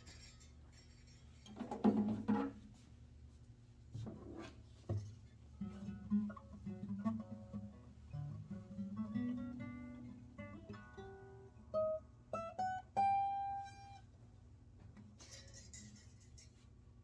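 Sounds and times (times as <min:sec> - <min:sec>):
acoustic guitar playing: 0:05.6 - 0:14.1.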